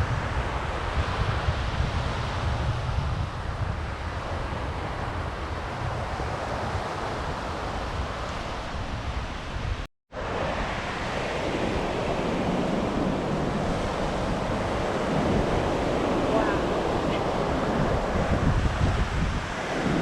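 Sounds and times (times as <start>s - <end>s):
sea surf washing onto beach: 0.0s - 20.0s
wind buffeting microphone: 0.0s - 20.0s.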